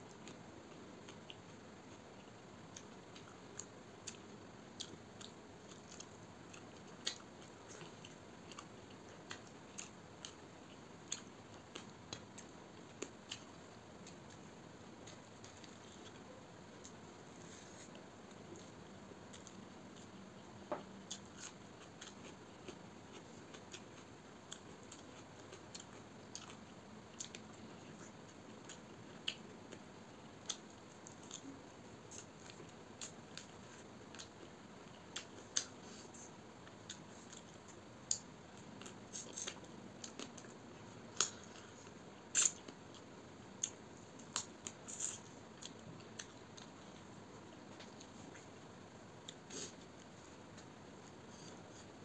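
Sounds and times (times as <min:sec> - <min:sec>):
wet chewing and biting: 0:42.3 - 0:43.0
teeth crunching on bone: 0:42.3 - 0:46.7.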